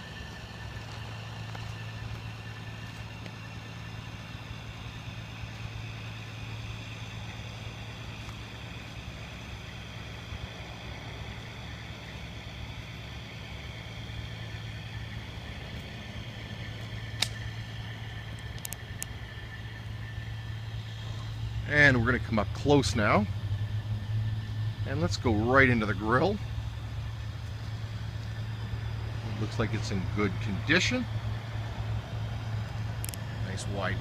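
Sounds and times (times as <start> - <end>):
engine idling: 0.0 - 34.0
sharp click: 17.2 - 17.5.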